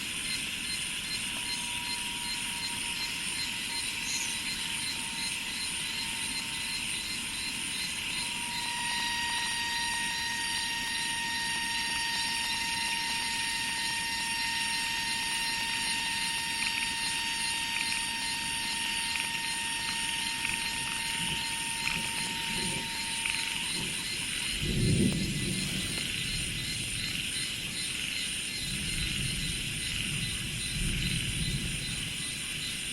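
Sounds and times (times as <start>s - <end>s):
constant whining tone: 0.0s - 32.9s
insect hiss: 0.0s - 32.9s
low rumble: 21.0s - 27.1s.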